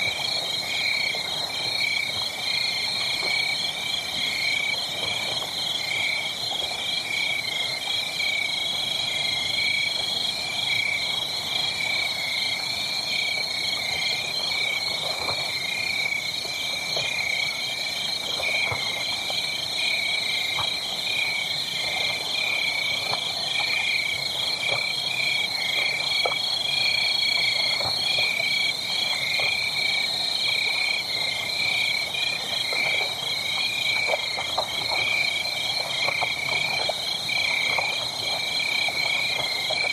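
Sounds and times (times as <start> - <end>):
faint fire crackles: 0.0 - 39.9.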